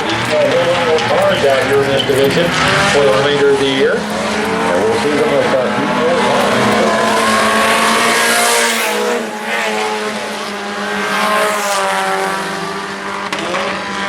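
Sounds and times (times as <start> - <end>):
race car engines passing: 0.0 - 14.0.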